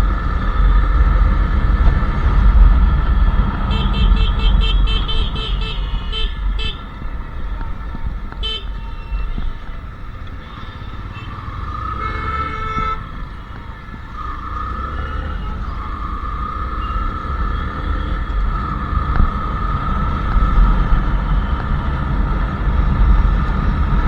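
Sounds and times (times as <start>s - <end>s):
motorcycle engine rumbling: 0.0s - 24.0s
vehicle horns honking: 3.5s - 7.5s, 8.3s - 15.9s, 16.7s - 18.8s.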